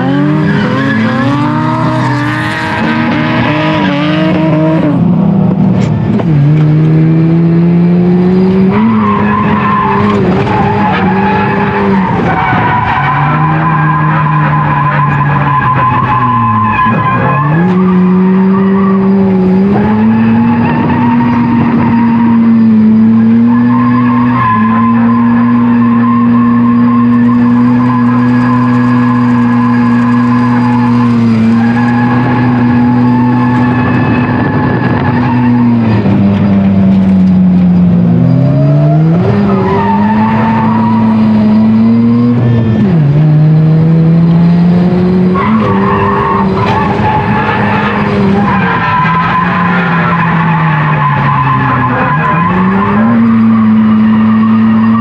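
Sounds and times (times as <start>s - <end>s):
tires squealing and skidding: 0.0s - 4.9s, 8.3s - 36.2s, 38.2s - 43.0s, 45.2s - 55.0s
rotary engine revving high: 0.0s - 55.0s.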